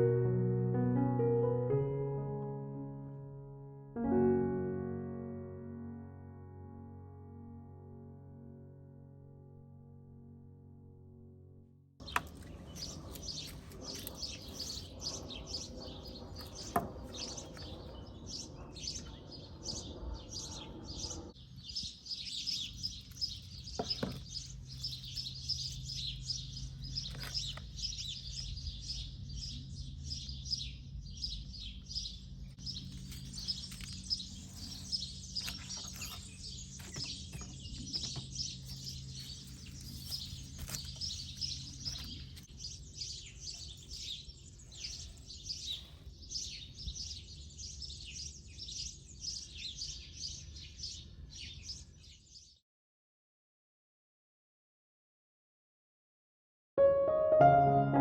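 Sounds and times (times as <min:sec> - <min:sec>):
small birds chirping: 0:12.0 - 0:52.6.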